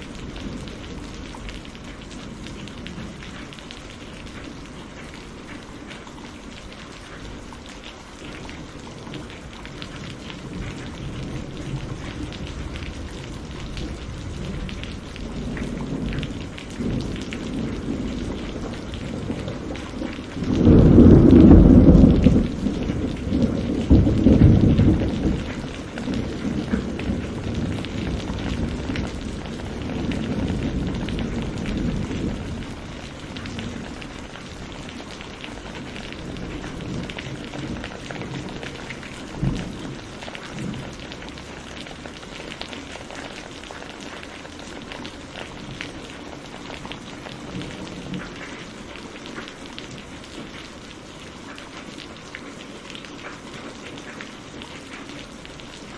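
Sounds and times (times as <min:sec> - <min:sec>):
rain pattering: 0:00.0 - 0:55.9
thunder rolling: 0:10.4 - 0:41.1.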